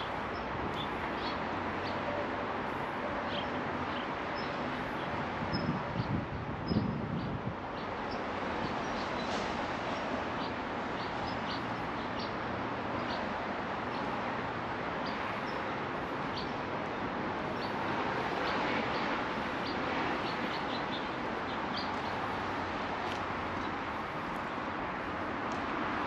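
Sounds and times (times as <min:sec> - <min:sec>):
steady rushing noise: 0:00.0 - 0:26.0
birds chirping: 0:17.4 - 0:22.6.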